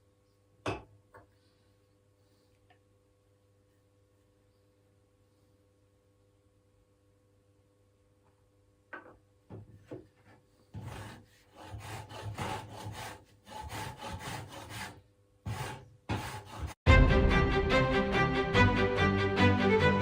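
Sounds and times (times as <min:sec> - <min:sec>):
hand scraping wood: 0:10.2 - 0:16.8
music: 0:16.9 - 0:20.0.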